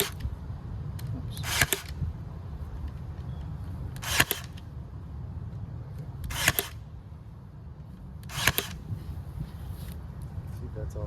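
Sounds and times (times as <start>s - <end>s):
staple gun firing: 1.4s - 2.0s, 4.0s - 4.6s.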